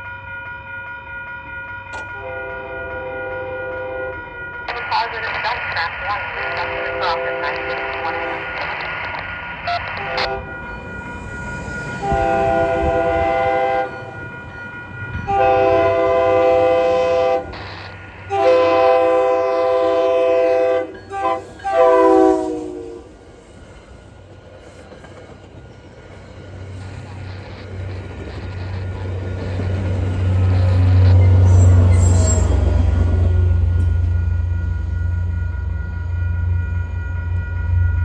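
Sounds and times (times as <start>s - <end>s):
approaching train rumble: 0.0s - 38.0s
train air horn blasts: 2.2s - 4.2s, 6.6s - 8.4s, 9.7s - 10.5s, 12.0s - 14.2s, 15.2s - 23.1s.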